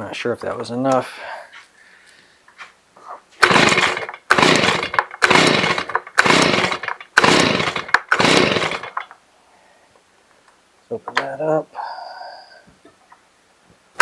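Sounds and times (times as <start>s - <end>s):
leaf blower engine cranking: 3.4s - 9.2s
recoil starter pulled: 3.4s - 9.2s.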